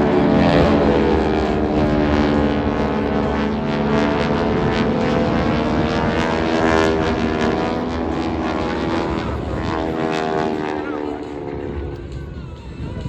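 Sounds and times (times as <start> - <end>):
propeller aircraft droning past: 0.0 - 13.0.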